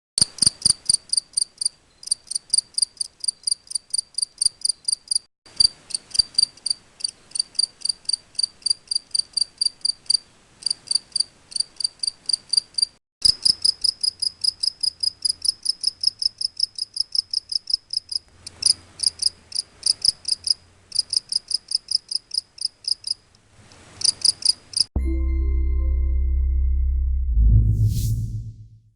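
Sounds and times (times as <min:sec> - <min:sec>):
cricket chirping: 0:00.3 - 0:23.2, 0:24.0 - 0:24.9
loud steady low tone: 0:25.0 - 0:28.9.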